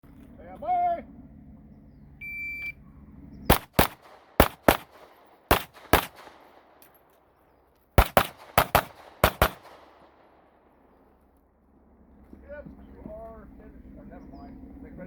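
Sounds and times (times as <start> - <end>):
shot timer beep: 2.2 - 2.8
pistol shots: 3.5 - 7.4, 8.0 - 10.9.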